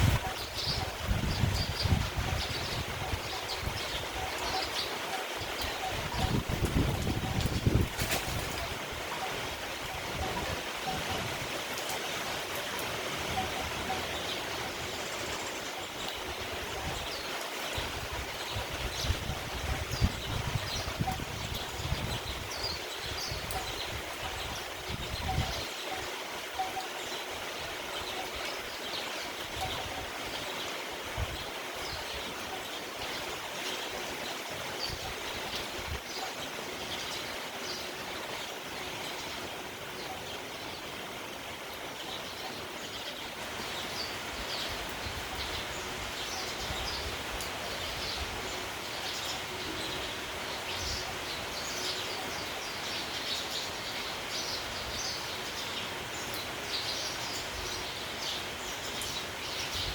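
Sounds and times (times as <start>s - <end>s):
sparrows chirping: 0.0s - 9.4s, 13.3s - 27.3s, 31.4s - 59.9s
wind gusts rumbling: 0.0s - 11.8s
steady rain: 0.0s - 59.9s.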